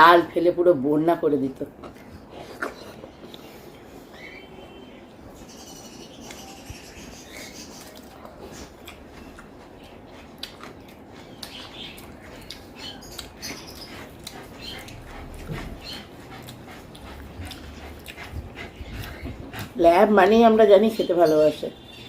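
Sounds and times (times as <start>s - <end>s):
dog chewing and lip-smacking: 1.5s - 3.9s, 5.4s - 22.0s.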